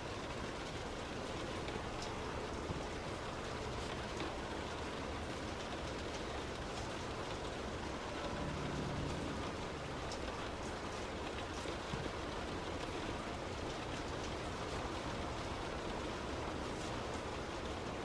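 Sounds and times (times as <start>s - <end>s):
heavy rain hitting a car: 0.0s - 18.0s
car rumbling on wet road: 7.9s - 11.4s.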